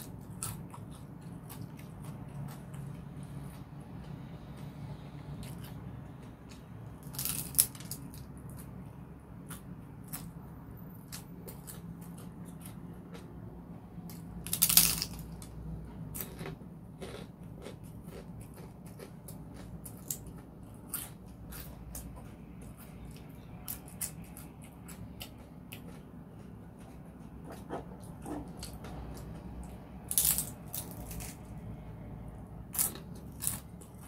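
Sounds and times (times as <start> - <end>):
noisy crunch: 0.0 - 34.0
chewing with mouth clicks: 16.2 - 31.4.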